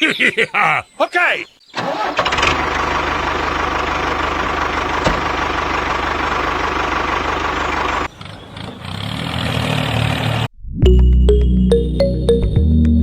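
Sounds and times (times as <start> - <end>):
small engine chugging: 1.8 - 10.2.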